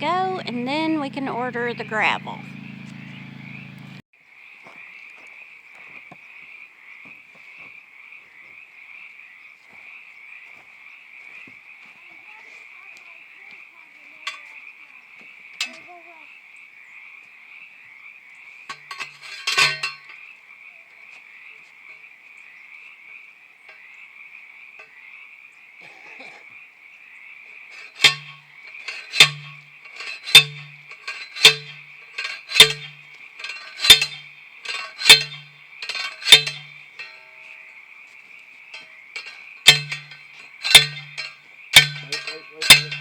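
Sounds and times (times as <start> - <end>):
metal-on-metal clanging strikes: 18.7 - 20.1, 27.9 - 37.4, 38.8 - 43.0.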